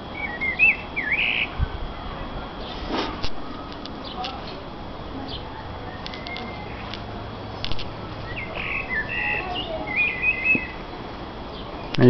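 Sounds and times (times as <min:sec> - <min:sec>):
bird warbling song: 0:00.1 - 0:01.6, 0:05.2 - 0:07.0, 0:08.2 - 0:10.8.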